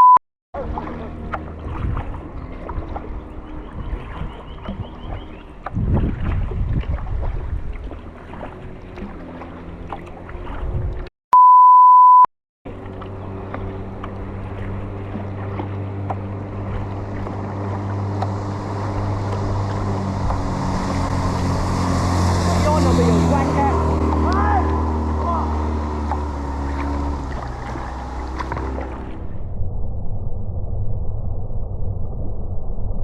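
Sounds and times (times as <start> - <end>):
censor bleep: 0.0 - 0.2, 11.3 - 12.3
motorboat engine drone: 0.0 - 11.1, 12.7 - 33.0
paddle strokes and water splashing: 0.6 - 11.1, 12.7 - 29.4.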